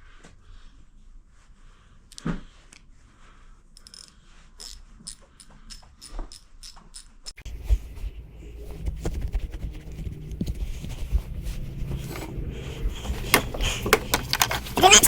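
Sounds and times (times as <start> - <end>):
tool handling noise: 11.9 - 15.0.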